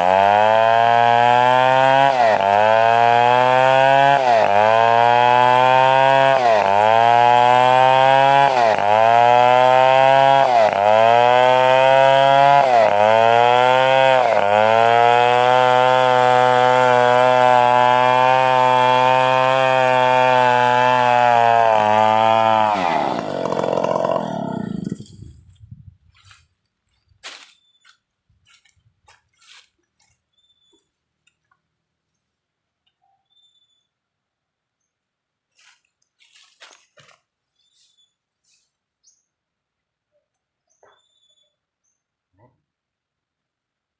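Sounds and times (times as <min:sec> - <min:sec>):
chainsaw cutting wood: 0:00.0 - 0:25.6.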